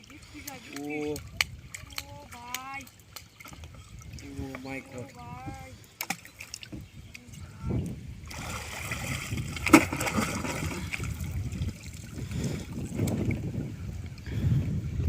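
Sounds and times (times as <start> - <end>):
water sloshing around boat: 0.0 - 15.0.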